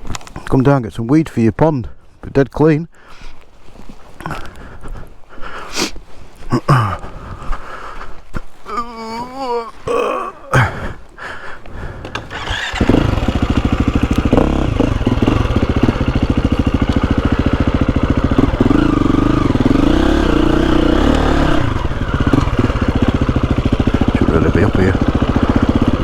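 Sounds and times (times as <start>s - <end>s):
motorcycle engine running: 12.1s - 26.0s.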